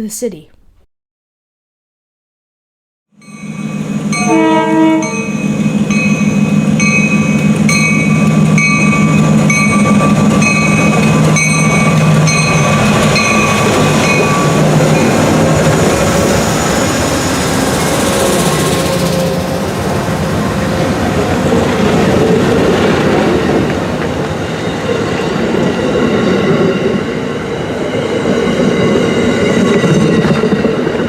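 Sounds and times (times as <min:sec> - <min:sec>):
low locomotive drone: 0:03.2 - 0:31.0
train horn: 0:04.1 - 0:05.6.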